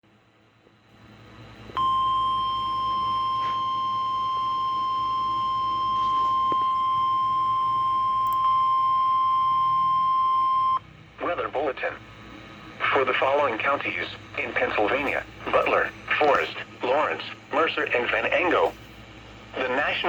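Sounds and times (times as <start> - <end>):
faint radio hiss: 11.1 - 20.0.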